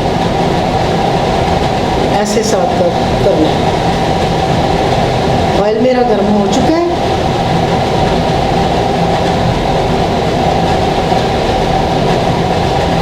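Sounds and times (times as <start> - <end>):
faint hum: 0.0 - 13.0
low rushing rumbling noise: 0.0 - 13.0.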